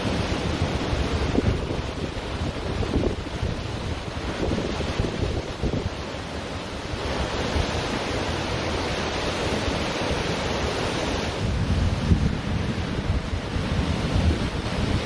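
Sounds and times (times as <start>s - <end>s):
ocean waves washing onto beach: 0.0s - 15.0s
wind buffeting microphone: 0.0s - 15.0s.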